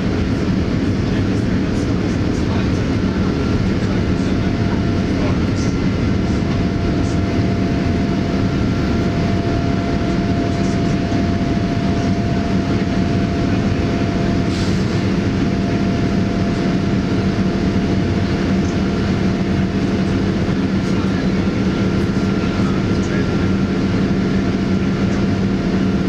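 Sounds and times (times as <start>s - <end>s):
airplane cabin rumble and hum: 0.0s - 26.0s.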